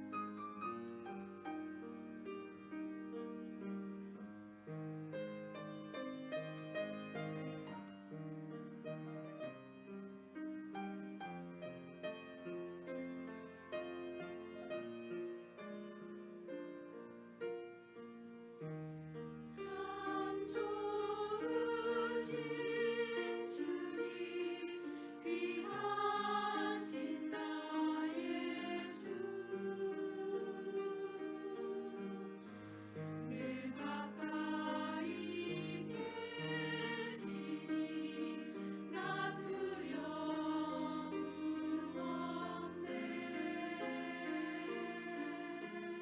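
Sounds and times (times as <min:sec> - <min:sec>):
piano accompaniment: 0:00.0 - 0:46.0
choir singing a hymn: 0:19.6 - 0:46.0.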